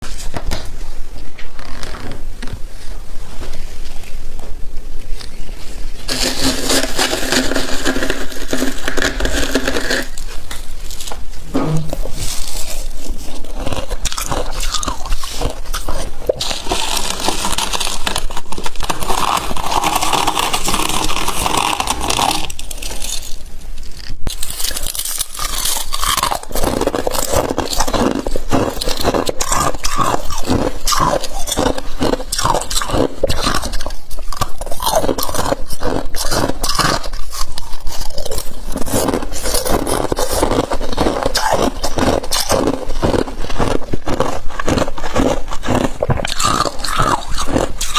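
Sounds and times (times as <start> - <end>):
crunching and chewing frost: 4.9 - 47.9.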